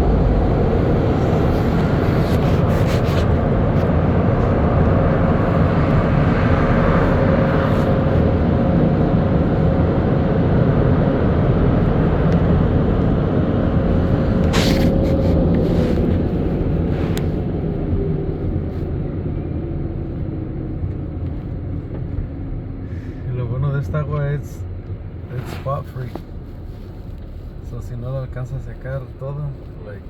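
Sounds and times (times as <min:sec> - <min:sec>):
car wash machinery rumbling: 0:00.0 - 0:21.1.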